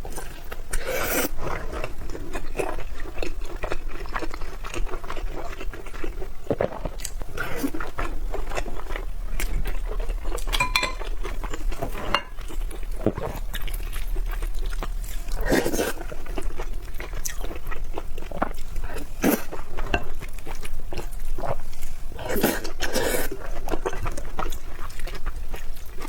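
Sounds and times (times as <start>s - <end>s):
chewing and biting food: 0.0s - 26.0s
utensils clinking on a dish: 10.5s - 11.1s, 12.0s - 12.4s.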